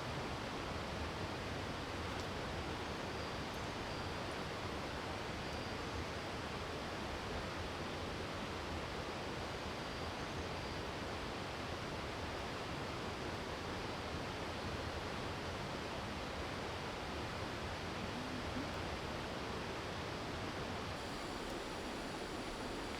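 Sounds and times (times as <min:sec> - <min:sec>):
water rushing: 0:21.0 - 0:22.9.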